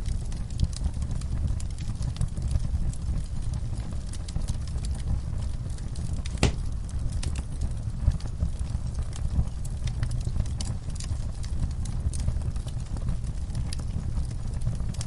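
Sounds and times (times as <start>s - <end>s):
fire crackling and popping: 0.0s - 15.0s
fire low rumble: 0.0s - 15.0s.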